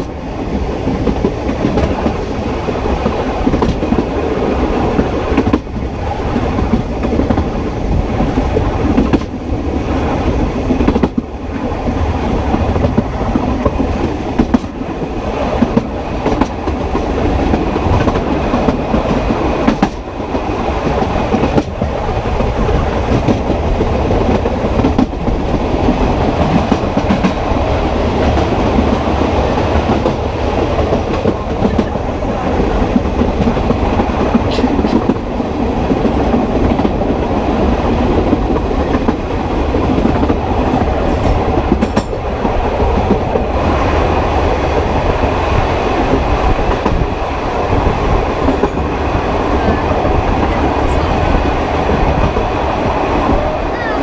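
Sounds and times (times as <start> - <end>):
train wheels rumbling on rail: 0.0 - 54.0
wheels clicking over rail joints: 15.6 - 44.0, 46.0 - 52.5.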